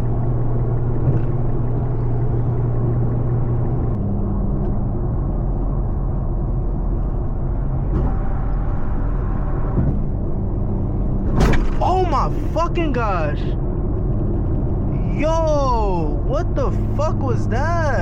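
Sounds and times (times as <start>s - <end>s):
car engine drone: 0.0s - 18.0s
road and wind rumble: 0.0s - 18.0s.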